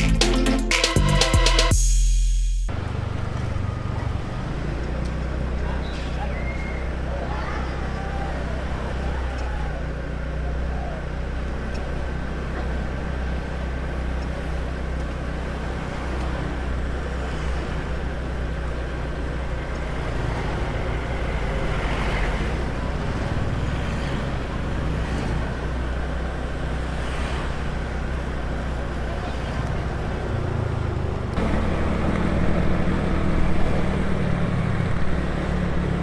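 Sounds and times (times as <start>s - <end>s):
road and traffic noise: 2.7s - 36.0s
motor scooter engine hum: 27.8s - 36.0s.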